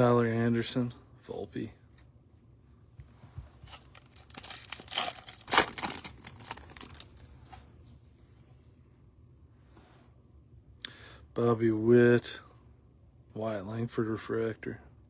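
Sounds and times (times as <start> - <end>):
wrapper tearing and crinkling: 3.7 - 7.3.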